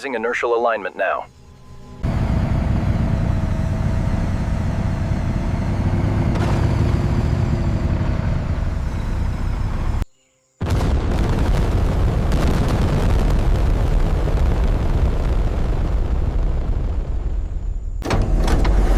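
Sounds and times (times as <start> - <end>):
aircraft engine rumbling: 0.0 - 10.0.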